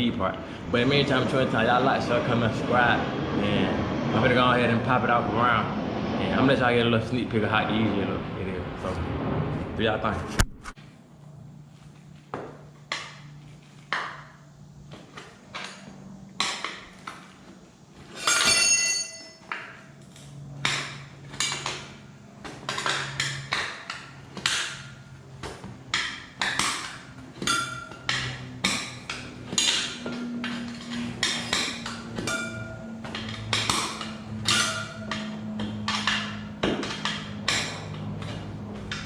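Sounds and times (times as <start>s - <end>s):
tire irons clanking on wheel rim: 12.4s - 39.0s.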